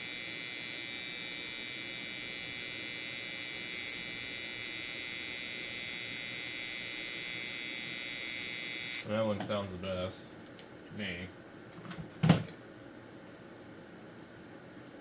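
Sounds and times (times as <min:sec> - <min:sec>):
tattoo machine buzzing: 0:00.0 - 0:09.1.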